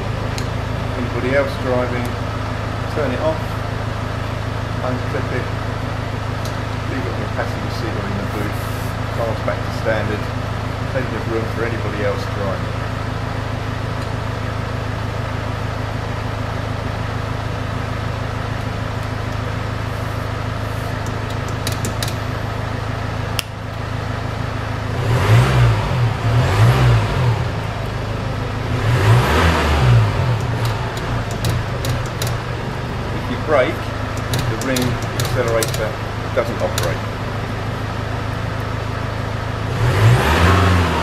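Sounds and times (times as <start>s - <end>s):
car engine idling: 0.0s - 40.8s
engine revving: 24.7s - 38.1s, 39.1s - 41.0s
switch click: 30.3s - 32.6s, 34.1s - 35.9s.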